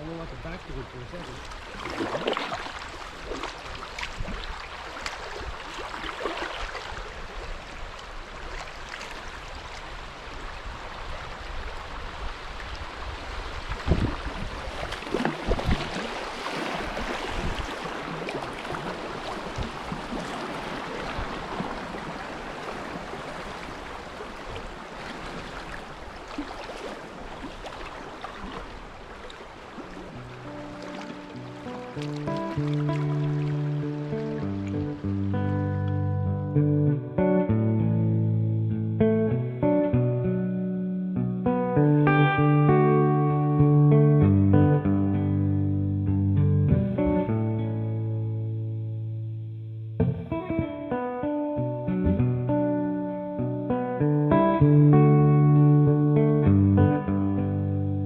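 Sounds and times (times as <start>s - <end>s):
rushing river water splashing: 0.0s - 36.1s.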